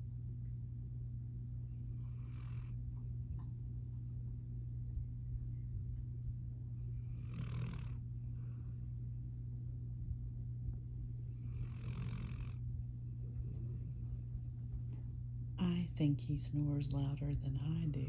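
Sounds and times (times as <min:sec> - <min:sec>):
steady low hum: 0:00.0 - 0:18.0
puppy snoring: 0:01.8 - 0:03.0, 0:06.8 - 0:08.9, 0:11.3 - 0:14.4.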